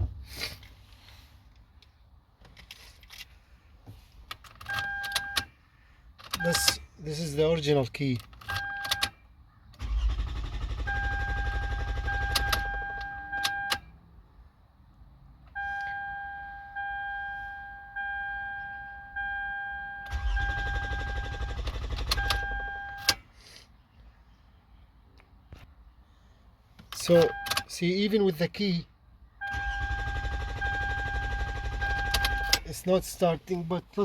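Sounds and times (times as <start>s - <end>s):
dashboard warning chime beeping: 4.6s - 5.5s, 6.4s - 6.8s, 8.5s - 9.2s, 10.8s - 13.9s, 15.5s - 23.2s, 27.0s - 27.7s, 29.4s - 32.8s
engine starter cranking: 9.8s - 13.0s, 20.0s - 23.2s, 29.4s - 32.7s.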